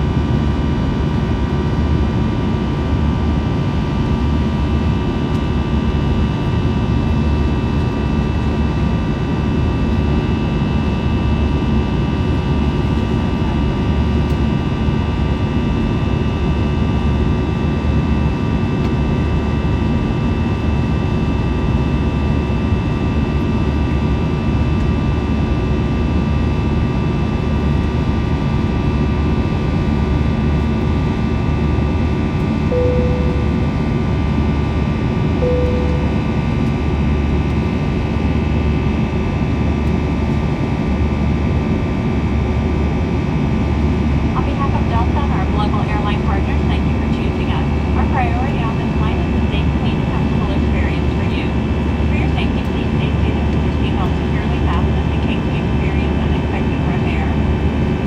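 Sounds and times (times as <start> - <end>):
jet engine roar in cabin: 0.0 - 58.0
brief tone: 32.6 - 34.4, 35.4 - 36.9.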